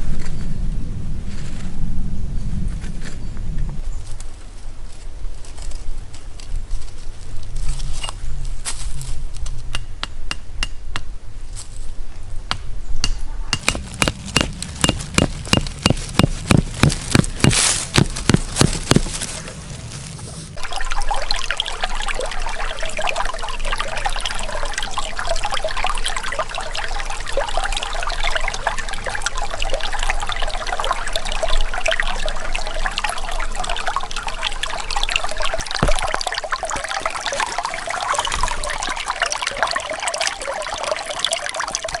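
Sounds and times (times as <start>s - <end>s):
sharp knocks: 12.5s - 19.2s
rushing water: 13.6s - 42.0s.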